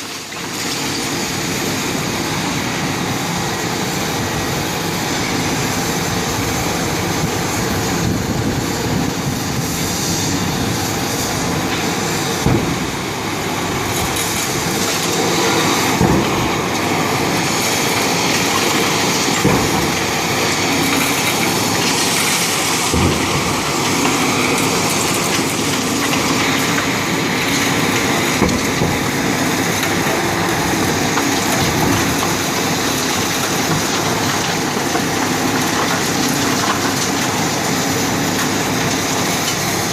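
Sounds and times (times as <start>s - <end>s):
demolition machinery running: 0.0s - 39.9s
debris thuds and knocks: 11.6s - 37.6s.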